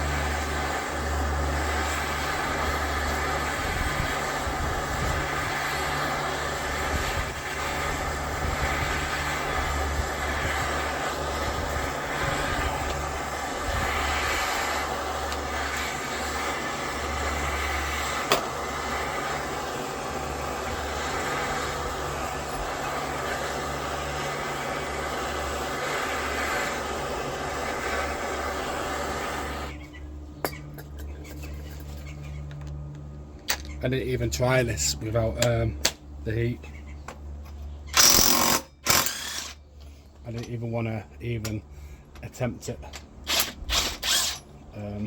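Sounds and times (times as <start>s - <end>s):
heating tool roaring: 0.0s - 30.1s, 37.9s - 40.0s, 42.7s - 45.0s.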